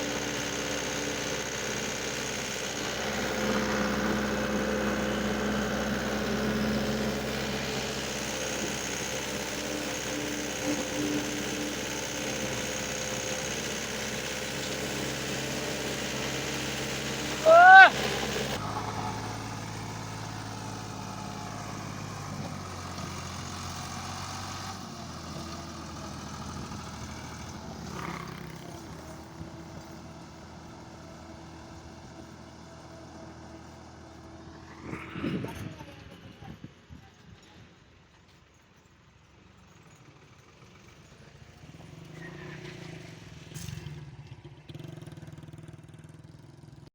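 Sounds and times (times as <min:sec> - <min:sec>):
diesel engine idling: 0:00.0 - 0:36.6.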